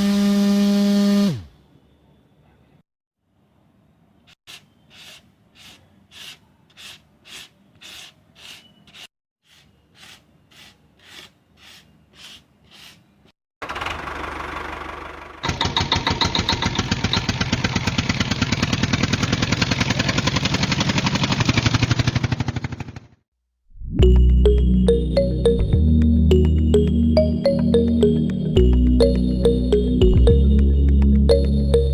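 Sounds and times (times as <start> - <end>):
small motor buzzing: 0.0 - 1.5.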